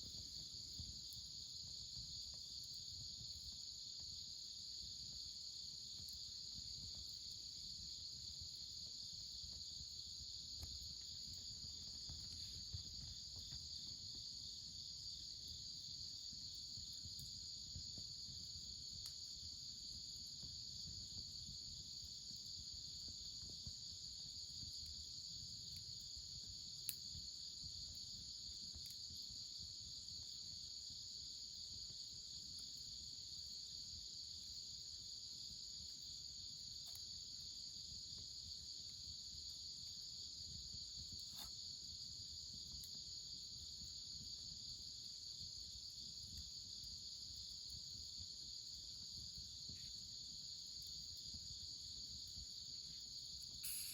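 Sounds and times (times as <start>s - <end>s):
insects chirring: 0.0s - 21.3s, 39.4s - 53.9s.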